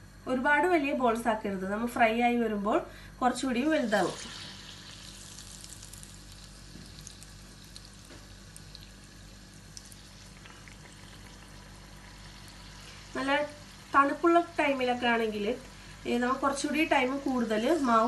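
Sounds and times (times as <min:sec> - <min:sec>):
dough deep-frying in oil: 0:03.3 - 0:18.0.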